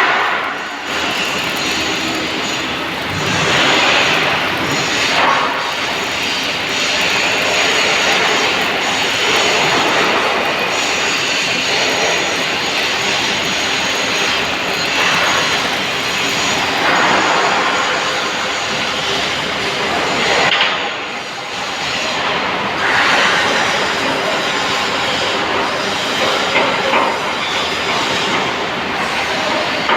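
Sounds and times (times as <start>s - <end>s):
welding arc crackling: 0.0s - 18.2s.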